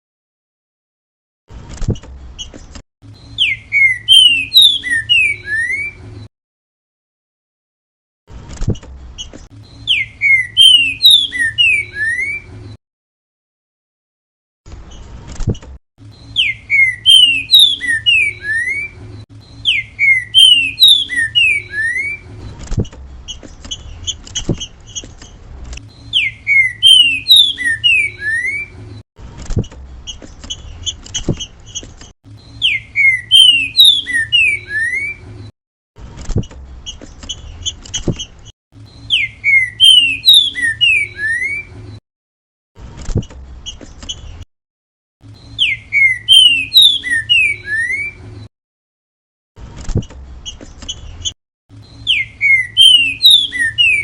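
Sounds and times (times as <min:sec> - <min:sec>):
bird whistling falling notes: 0:03.3 - 0:06.0, 0:09.9 - 0:12.5, 0:16.2 - 0:22.2, 0:26.0 - 0:28.7, 0:32.6 - 0:35.2, 0:39.0 - 0:41.7, 0:45.4 - 0:48.2, 0:51.9 - 0:54.0.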